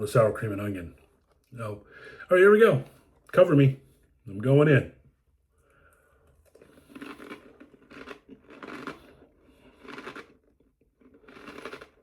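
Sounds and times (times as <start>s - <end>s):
person chewing crunchy snack: 6.0s - 12.0s.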